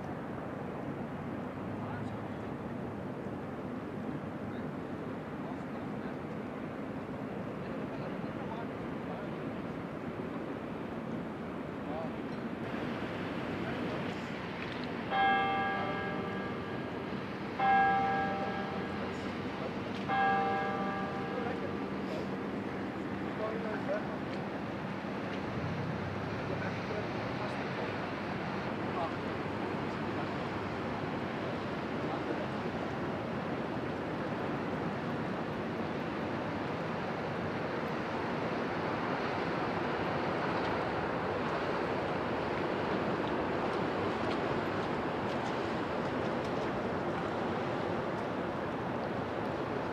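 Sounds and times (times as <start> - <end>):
wind: 0.0 - 49.9
river water rushing: 9.4 - 49.9
church bell tolling: 15.1 - 22.0.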